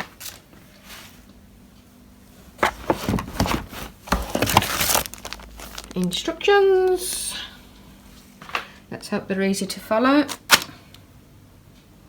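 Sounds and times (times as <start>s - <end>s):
cardboard packaging rustling: 2.6s - 6.3s.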